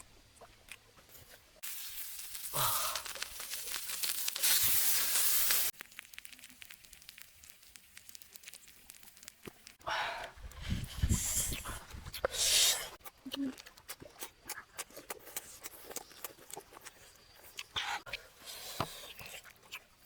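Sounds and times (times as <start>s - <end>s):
faint crackling: 1.1s - 12.3s
meat sizzling on hot stone: 1.6s - 9.8s.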